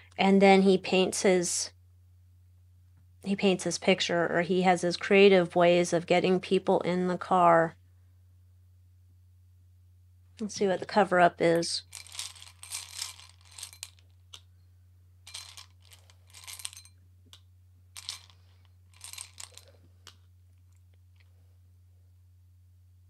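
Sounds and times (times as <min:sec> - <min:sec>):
cards being shuffled: 0:11.9 - 0:14.4, 0:18.0 - 0:20.2.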